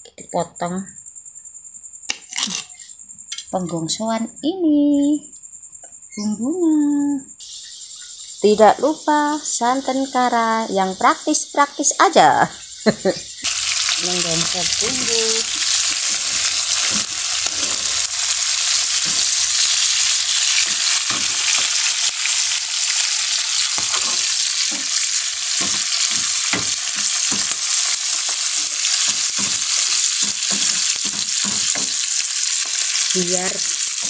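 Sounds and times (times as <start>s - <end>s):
food sizzling in hot oil: 7.4s - 34.0s.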